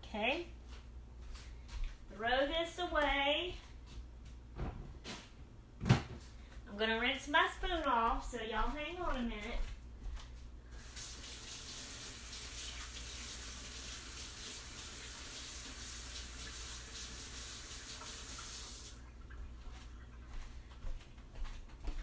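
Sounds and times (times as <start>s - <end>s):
faucet running: 10.8s - 19.1s.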